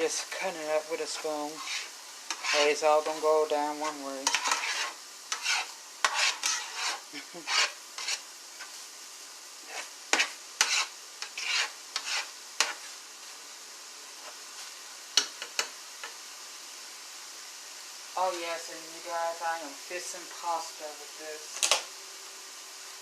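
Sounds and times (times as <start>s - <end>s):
meat sizzling in a frying pan: 0.0s - 23.0s
spoon scraping and knocking pan: 0.1s - 8.8s, 9.7s - 13.0s, 14.2s - 16.2s.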